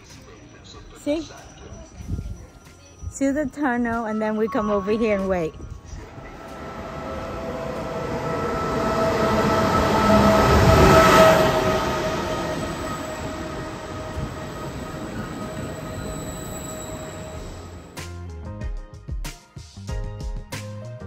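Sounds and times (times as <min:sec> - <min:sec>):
electric train rumble: 0:00.0 - 0:18.4
steady whining tones: 0:05.6 - 0:18.0.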